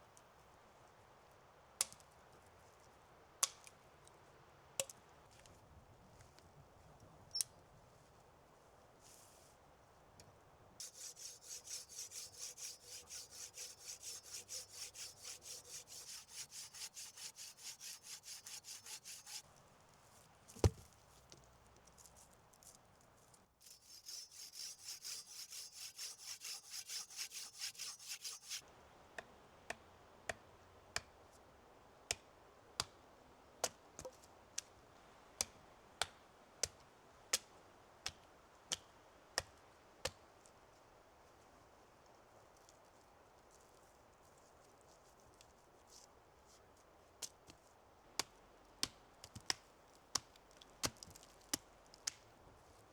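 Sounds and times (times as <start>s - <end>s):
hand saw cutting wood: 10.8s - 19.4s, 23.6s - 28.6s
single knock: 20.6s - 20.8s.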